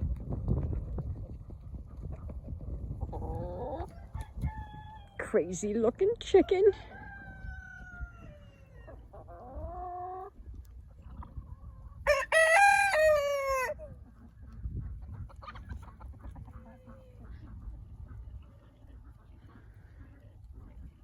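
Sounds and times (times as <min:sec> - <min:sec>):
rooster crowing: 0:12.1 - 0:13.8.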